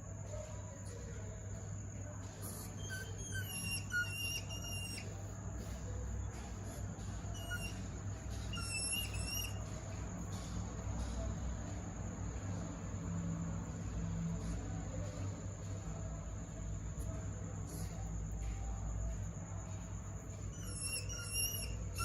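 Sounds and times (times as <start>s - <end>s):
steady low hum: 0.0s - 22.0s
hedgehogs chirping: 2.2s - 11.3s, 20.2s - 22.0s.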